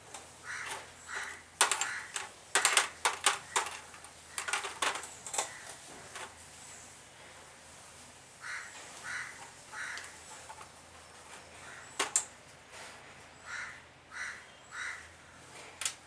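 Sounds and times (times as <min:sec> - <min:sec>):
metal engine parts and tools clinking: 0:00.0 - 0:06.4, 0:10.4 - 0:12.3.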